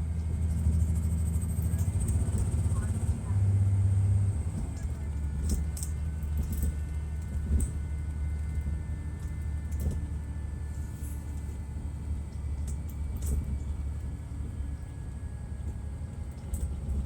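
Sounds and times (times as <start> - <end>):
diesel coach engine droning: 0.0 - 17.0
light clicks and rattles: 12.2 - 14.1.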